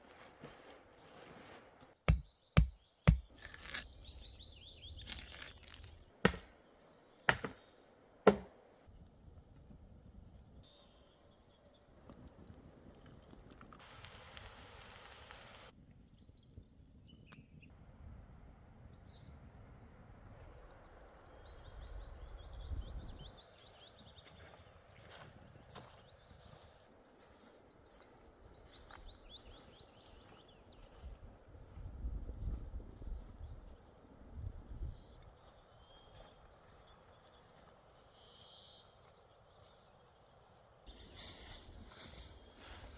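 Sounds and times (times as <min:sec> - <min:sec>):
sharp knocks: 0:07.3 - 0:07.6, 0:08.3 - 0:08.6
rustling hiss: 0:13.8 - 0:15.7
birds chirping: 0:20.5 - 0:31.2.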